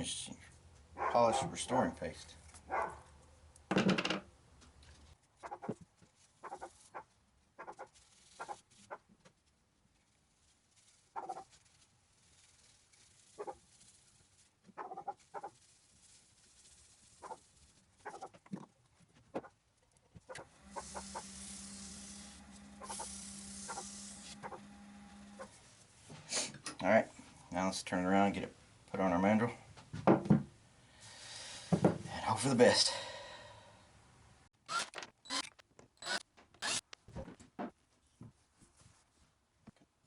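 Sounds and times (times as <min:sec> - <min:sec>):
dog barking: 0:01.0 - 0:01.5, 0:02.7 - 0:03.0
wood lathe humming: 0:20.4 - 0:25.7
polishing hiss: 0:20.6 - 0:24.4.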